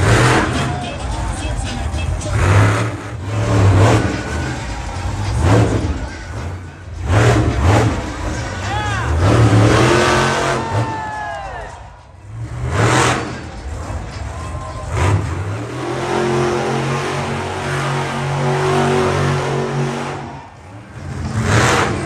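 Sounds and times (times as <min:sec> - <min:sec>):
loud bursts of noise: 0:00.0 - 0:11.1
monster truck engine revving: 0:00.0 - 0:11.2, 0:11.8 - 0:22.0.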